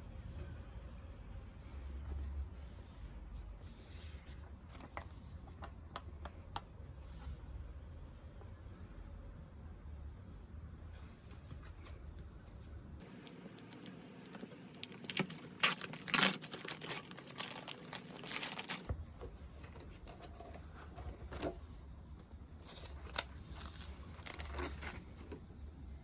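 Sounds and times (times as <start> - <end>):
wrapping crinkling and rustling: 13.0 - 18.9, 22.6 - 25.0.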